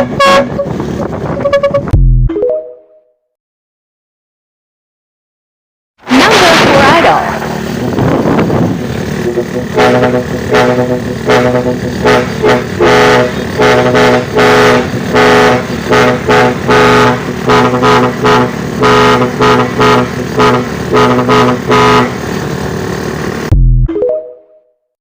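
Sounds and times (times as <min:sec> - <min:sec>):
truck horn tooting a tune: 0:00.0 - 0:02.0, 0:09.2 - 0:22.4
truck engine droning: 0:00.0 - 0:02.3, 0:06.1 - 0:23.9.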